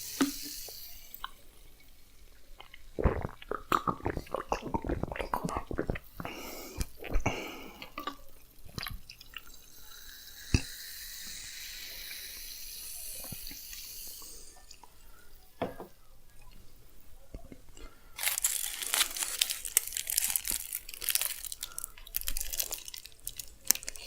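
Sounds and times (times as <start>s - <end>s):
clicks of eating and handling: 17.3s - 24.0s
water pouring: 18.2s - 24.0s.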